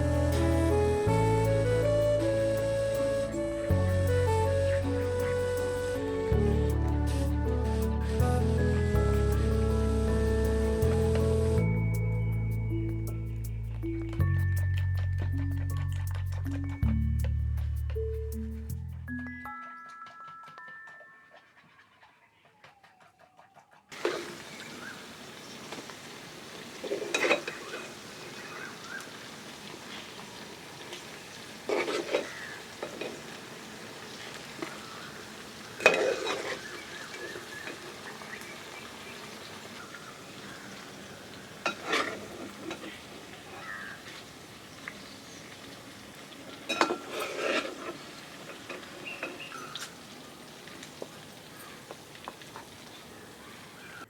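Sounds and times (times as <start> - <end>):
food sizzling in oil: 24.0 - 53.8
metal utensil scraping a pan: 26.8 - 28.0, 31.7 - 33.2, 35.8 - 37.4, 41.6 - 43.0, 46.7 - 49.9.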